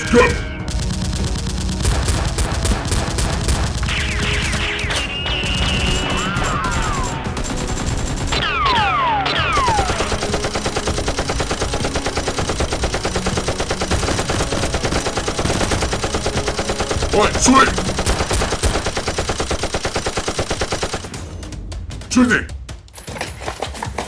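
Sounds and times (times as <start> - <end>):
rapid automatic gunfire: 0.1 - 21.2
falling whistling tones: 3.9 - 7.3.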